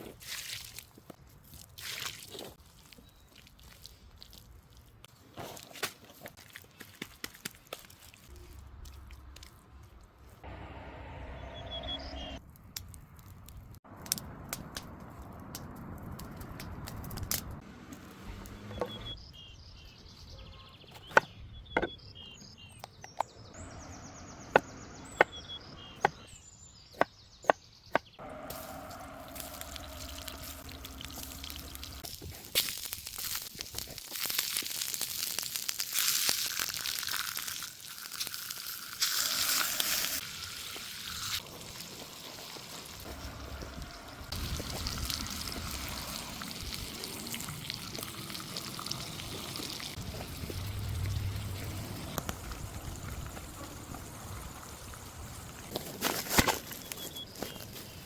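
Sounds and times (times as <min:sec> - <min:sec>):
food sizzling over fire: 0:28.3 - 0:57.8.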